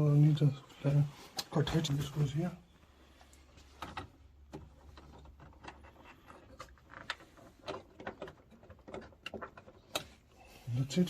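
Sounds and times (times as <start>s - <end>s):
clicks and knocks of fittings: 3.2s - 10.3s.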